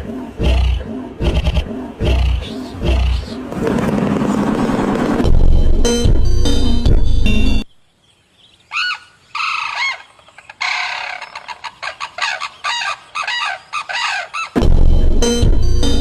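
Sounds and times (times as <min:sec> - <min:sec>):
music: 0:04.9 - 0:07.7, 0:14.6 - 0:16.0.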